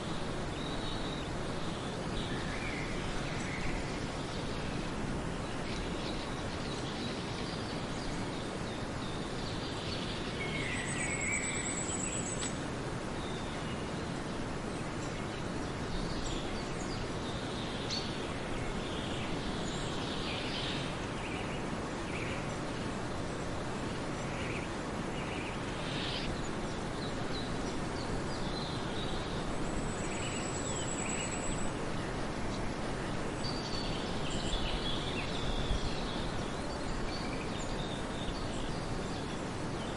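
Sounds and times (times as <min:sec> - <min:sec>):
outdoor background hiss: 0:00.0 - 0:39.9
birds chirping: 0:23.9 - 0:31.8.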